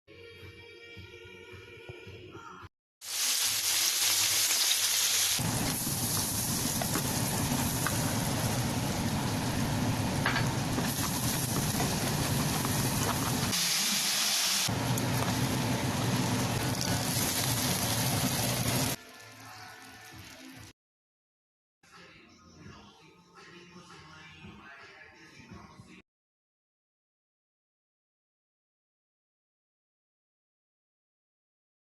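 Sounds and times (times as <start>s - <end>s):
food sizzling in hot pan: 3.0s - 20.7s.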